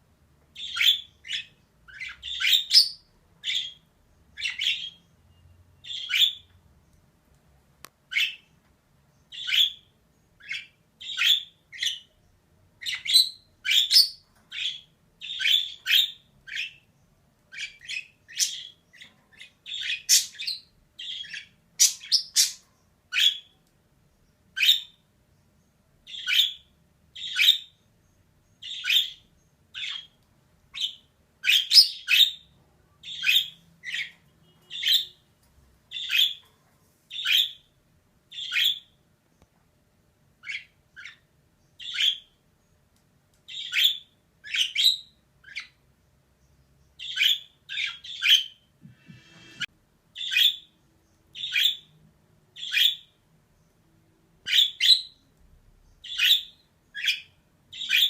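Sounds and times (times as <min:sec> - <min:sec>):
budgerigar chirping: 0:00.6 - 0:06.5, 0:08.1 - 0:08.5, 0:09.3 - 0:12.1, 0:12.8 - 0:16.8, 0:17.5 - 0:23.6, 0:24.6 - 0:25.0, 0:26.1 - 0:27.8, 0:28.6 - 0:35.2, 0:35.9 - 0:36.4, 0:37.1 - 0:37.7, 0:38.3 - 0:39.0, 0:40.4 - 0:42.4, 0:43.5 - 0:45.8, 0:47.0 - 0:49.6, 0:50.2 - 0:51.9, 0:52.6 - 0:53.2, 0:54.5 - 0:55.2, 0:56.0 - 0:58.0.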